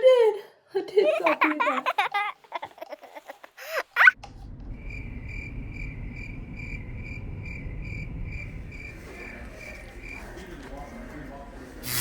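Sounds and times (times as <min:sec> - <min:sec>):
low rumble: 0:04.2 - 0:09.6
cricket chirping: 0:04.6 - 0:10.6.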